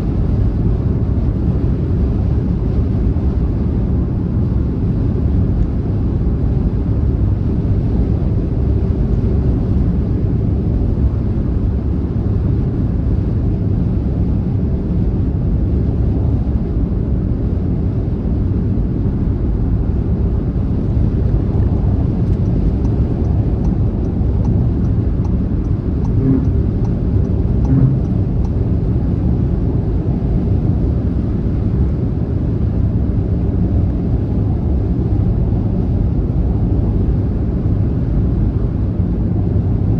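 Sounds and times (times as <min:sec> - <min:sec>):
car travelling at speed: 0:20.6 - 0:29.3.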